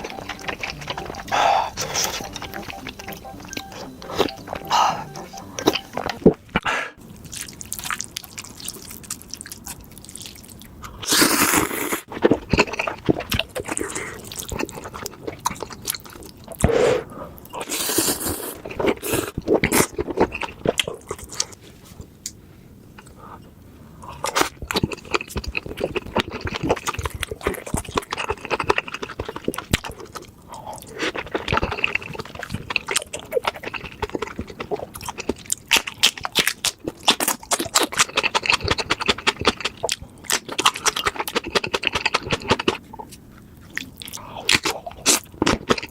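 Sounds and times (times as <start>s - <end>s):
wet chewing: 0.0s - 3.7s, 24.2s - 45.9s.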